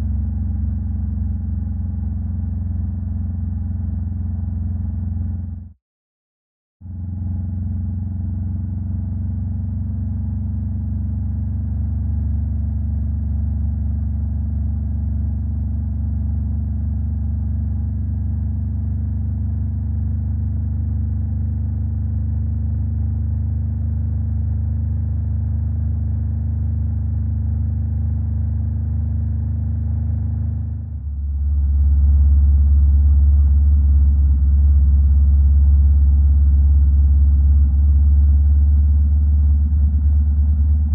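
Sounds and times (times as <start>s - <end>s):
motorcycle engine running: 23.5s - 40.9s.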